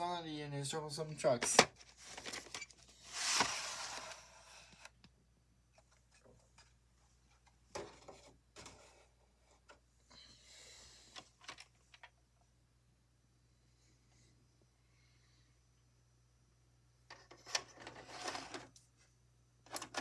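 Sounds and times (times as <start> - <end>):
plastic cassette case handled: 1.4 - 5.0, 11.2 - 12.1, 19.7 - 20.0.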